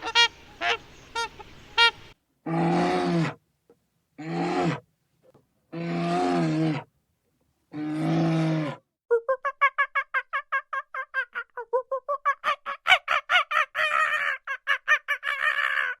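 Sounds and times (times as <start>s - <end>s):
fowl calling: 0.0s - 2.2s.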